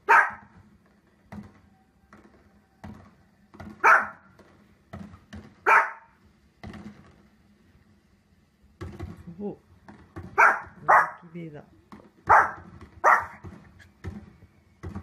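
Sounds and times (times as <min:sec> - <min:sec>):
small dog barking: 0:00.0 - 0:00.5, 0:03.8 - 0:04.3, 0:05.6 - 0:06.2, 0:10.4 - 0:11.3, 0:12.3 - 0:13.4.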